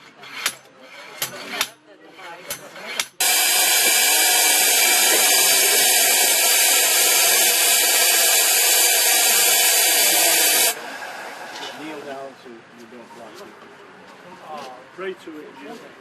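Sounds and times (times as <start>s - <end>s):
power tool grinding hiss: 3.0s - 10.8s.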